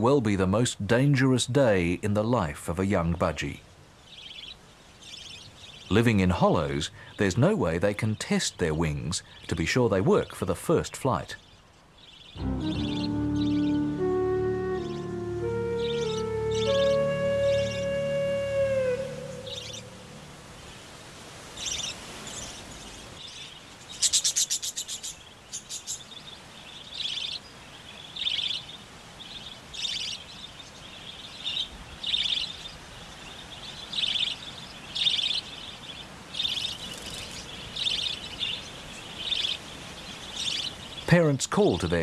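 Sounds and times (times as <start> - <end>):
budgerigars chirping: 12.0 - 20.3, 33.7 - 42.0.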